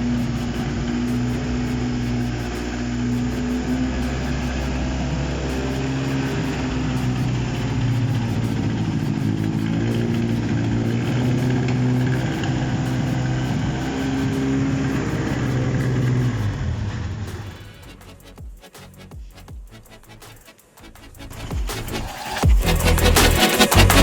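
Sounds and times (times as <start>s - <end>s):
car engine running: 0.0s - 17.7s.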